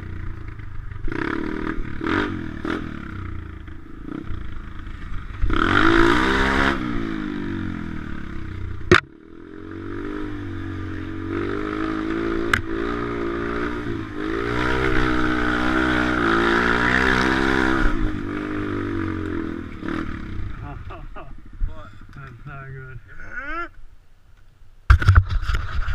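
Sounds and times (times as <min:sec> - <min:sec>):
small motorbike engine revving: 0:00.0 - 0:20.7
sharp knocks: 0:08.9 - 0:09.1.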